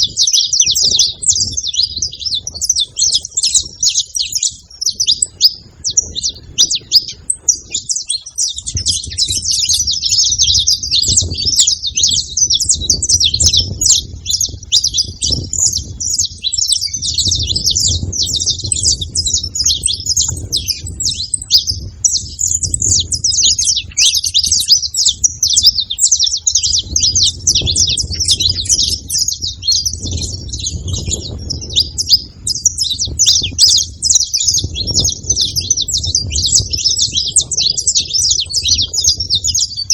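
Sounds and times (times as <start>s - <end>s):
finches chirping and singing: 0.0s - 39.9s.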